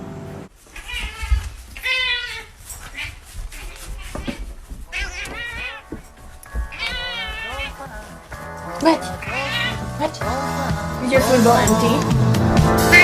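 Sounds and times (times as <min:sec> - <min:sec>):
animal bleating: 0:00.7 - 0:10.8.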